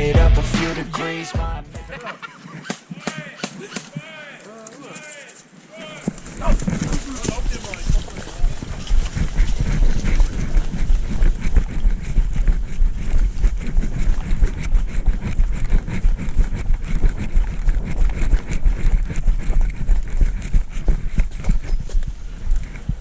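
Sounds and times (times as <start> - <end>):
knocks and rustles of movement: 2.5 - 23.0
wind rumble on microphone: 6.2 - 23.0.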